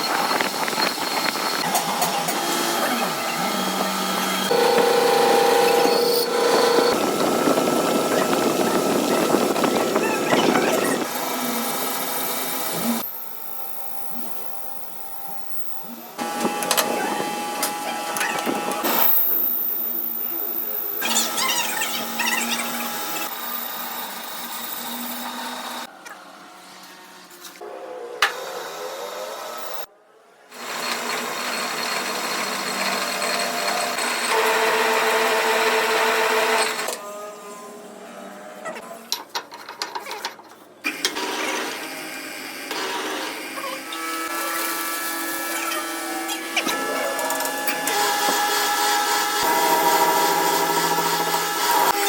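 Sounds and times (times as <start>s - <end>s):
machine tool motor whine: 0.0s - 29.9s, 40.9s - 52.0s.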